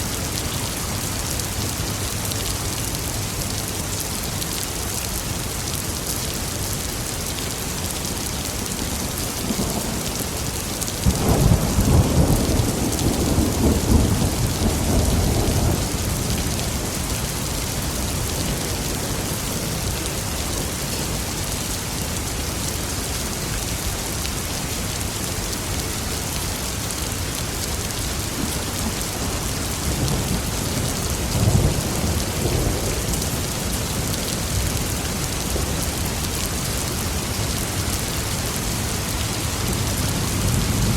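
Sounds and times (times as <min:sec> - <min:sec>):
rolling thunder: 0:11.0 - 0:17.1.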